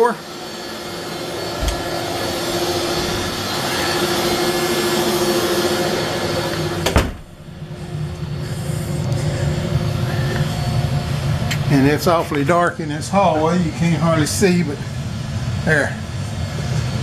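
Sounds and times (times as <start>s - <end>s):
router whining carving wood: 0.0s - 6.9s.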